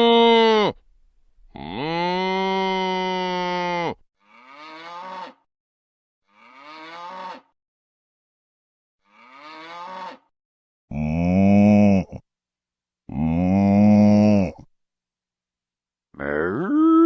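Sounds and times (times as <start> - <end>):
cattle mooing: 1.6 - 5.4, 6.3 - 7.5, 9.1 - 10.2.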